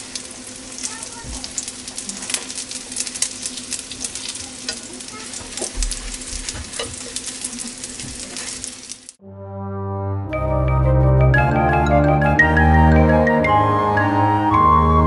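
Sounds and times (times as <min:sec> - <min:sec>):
food sizzling in oil: 0:00.0 - 0:09.2
music with held notes: 0:09.3 - 0:15.0.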